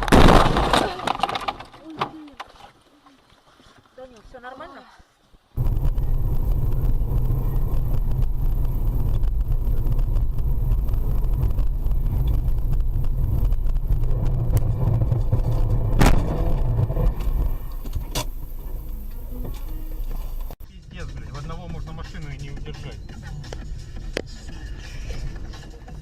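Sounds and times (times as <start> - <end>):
car engine and road rumble: 5.6 - 21.5.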